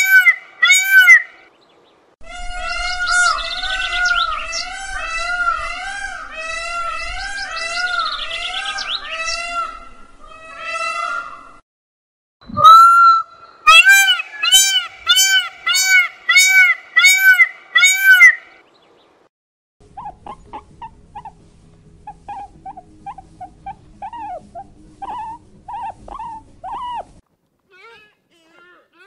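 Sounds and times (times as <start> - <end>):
peacock honking calls: 0.0 - 1.4, 12.6 - 18.6.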